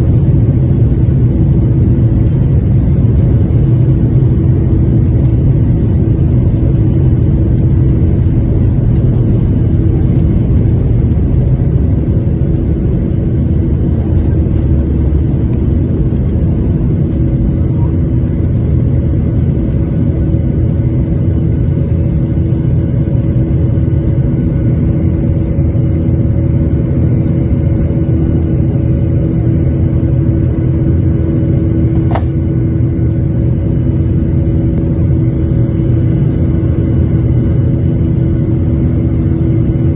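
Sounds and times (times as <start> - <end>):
airplane engine hum in cabin: 0.0 - 39.9.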